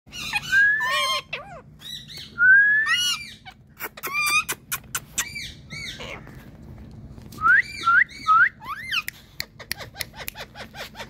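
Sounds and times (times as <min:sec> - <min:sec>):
parakeet chirps: 0:00.1 - 0:06.2
parakeet whistled calls: 0:00.1 - 0:06.2, 0:07.5 - 0:09.1.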